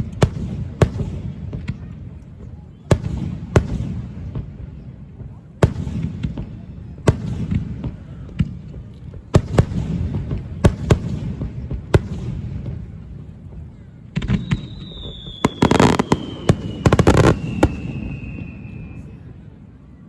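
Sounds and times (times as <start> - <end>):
fireworks bangs: 0.0 - 19.3
firework whistle falling in pitch: 14.4 - 19.1.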